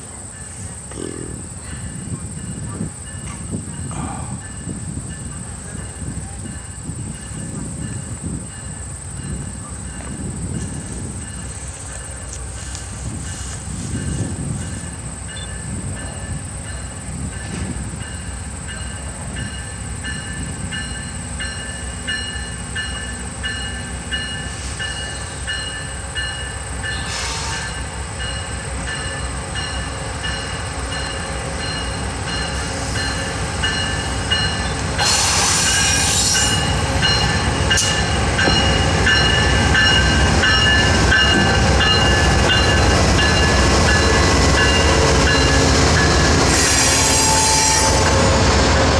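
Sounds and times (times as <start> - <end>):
train rumbling on rails: 0.0 - 48.9
burst of hiss: 35.0 - 36.4.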